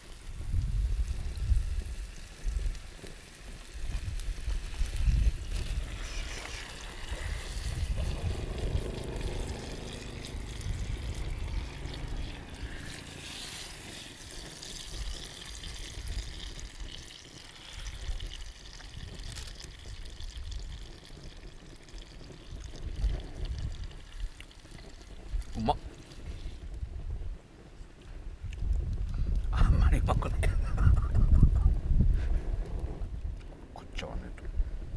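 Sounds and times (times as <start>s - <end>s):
wind rumble on microphone: 0.0s - 17.0s, 17.8s - 21.6s, 22.2s - 34.9s
water lapping and trickling: 0.0s - 26.8s.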